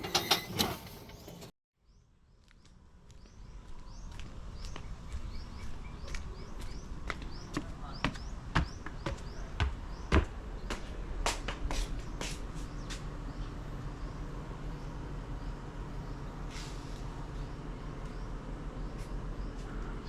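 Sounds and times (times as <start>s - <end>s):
birds chirping: 0.0s - 20.0s
footsteps walking: 2.4s - 13.1s.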